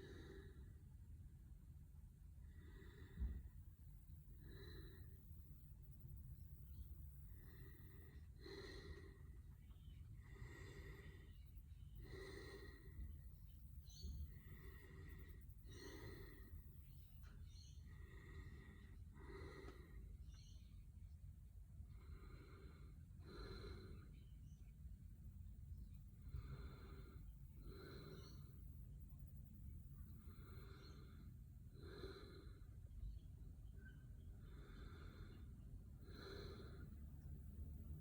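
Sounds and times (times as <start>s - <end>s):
low room hum: 0.0s - 38.0s
faint whistling breathing: 4.3s - 20.8s, 25.8s - 29.0s, 30.0s - 31.4s.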